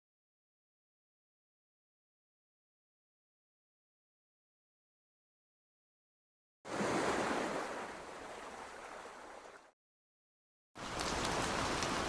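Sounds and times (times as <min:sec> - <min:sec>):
ocean waves washing in: 0:06.7 - 0:09.8
rushing noise with crackles: 0:10.8 - 0:12.0.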